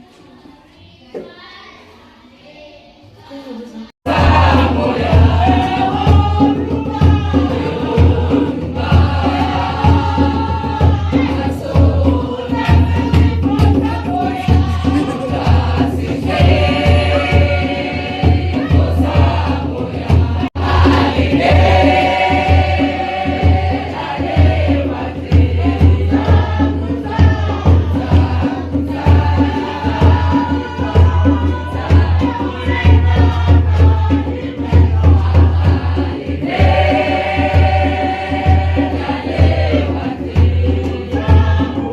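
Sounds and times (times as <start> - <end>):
choir singing gospel: 3.2 - 41.9
regular beat: 4.0 - 41.9.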